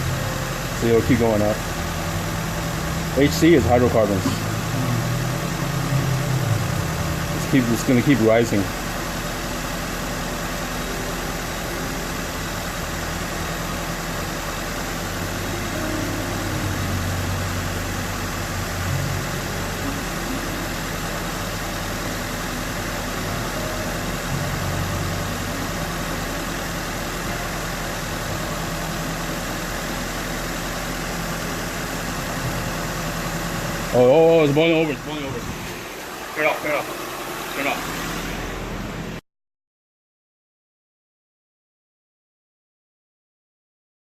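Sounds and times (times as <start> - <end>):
car engine idling: 0.0 - 39.2.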